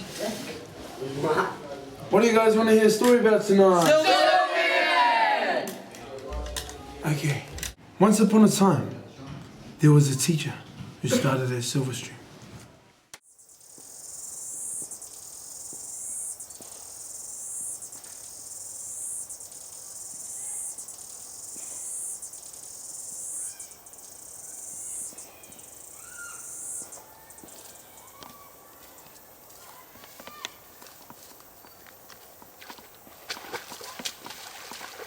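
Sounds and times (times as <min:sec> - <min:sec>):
insects chirping: 0:13.2 - 0:35.0
bird chirps: 0:13.3 - 0:28.7.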